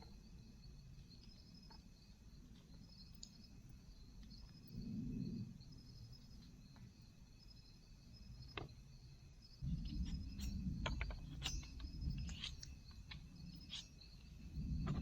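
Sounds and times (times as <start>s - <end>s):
insects chirping: 0.0s - 15.0s
sharp clicks and knocks: 9.6s - 15.0s.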